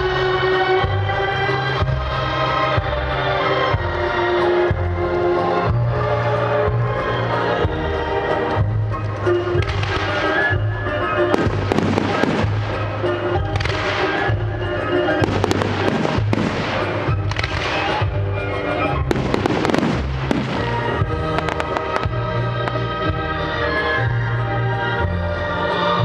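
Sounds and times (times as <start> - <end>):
loud music: 0.0 - 26.0
firework shells bursting: 19.1 - 22.8.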